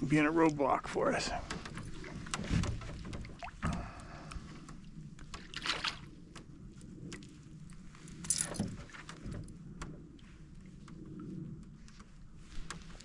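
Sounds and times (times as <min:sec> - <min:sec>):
paddle splashing in water: 0:05.2 - 0:06.4.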